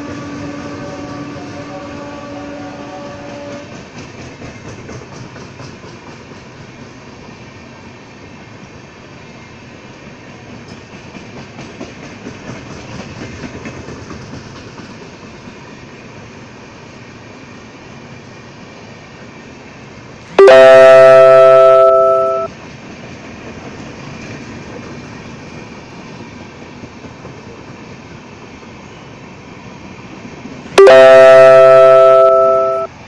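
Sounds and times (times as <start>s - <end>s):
train air horn: 0.0s - 3.8s
passenger train running past: 0.0s - 33.0s.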